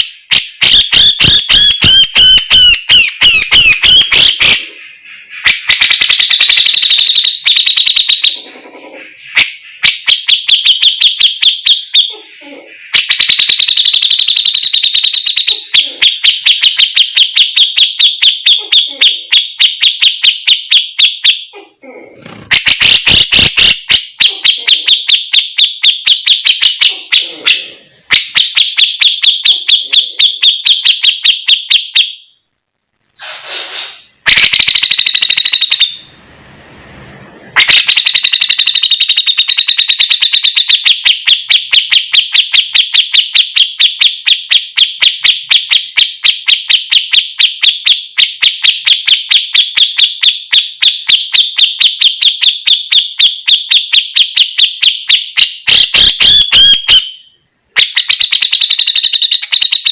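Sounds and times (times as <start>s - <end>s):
bird chattering song: 0.0s - 21.6s, 22.5s - 32.2s.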